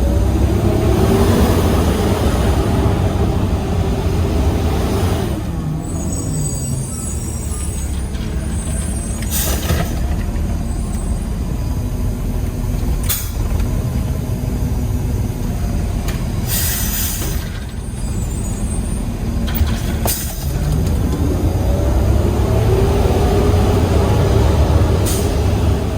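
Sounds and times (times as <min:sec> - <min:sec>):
truck engine running: 0:00.0 - 0:25.9
air brake hisses: 0:08.6 - 0:10.0, 0:16.4 - 0:19.0, 0:25.0 - 0:25.6.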